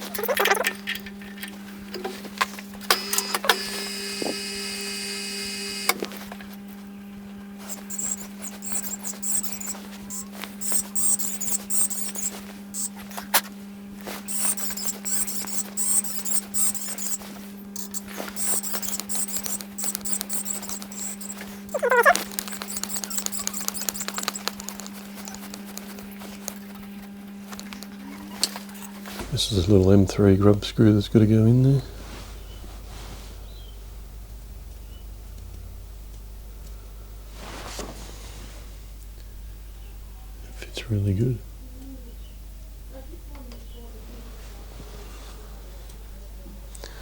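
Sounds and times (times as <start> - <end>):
clicks and scraping: 0.0 - 3.7, 14.2 - 26.9
drill motor humming: 2.8 - 6.6, 7.4 - 13.0, 14.1 - 36.8
drill bit squealing: 3.0 - 5.9, 7.6 - 13.0, 14.2 - 24.8.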